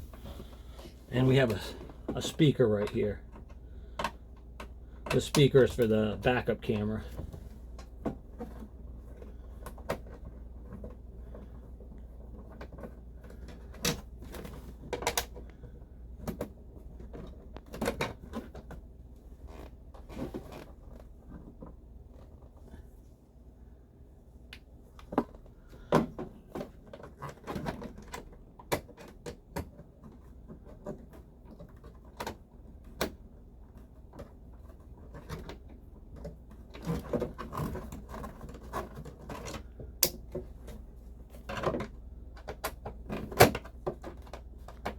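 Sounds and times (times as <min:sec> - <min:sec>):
low steady hum: 0:00.0 - 0:44.9
hand tools clicking on plastic: 0:02.8 - 0:06.9.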